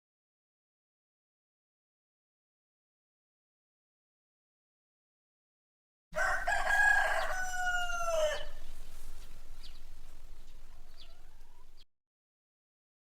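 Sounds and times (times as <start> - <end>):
rooster crowing: 6.2 - 11.8
faint bird chirps: 6.2 - 11.9.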